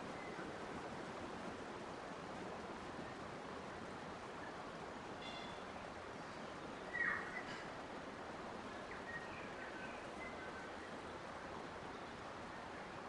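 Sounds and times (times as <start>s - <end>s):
flowing water rushing: 0.0s - 13.0s
bird chirps: 6.9s - 7.6s.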